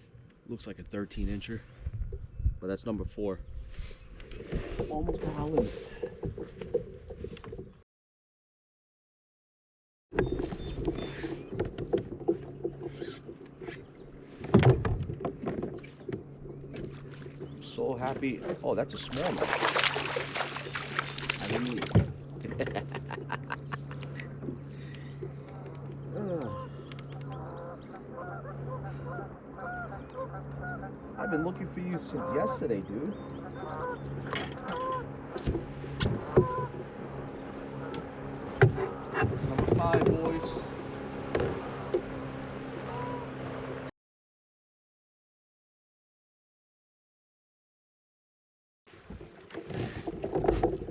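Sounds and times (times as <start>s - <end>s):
low steady hum: 10.4s - 41.1s
geese honking: 26.4s - 35.4s, 42.8s - 43.3s.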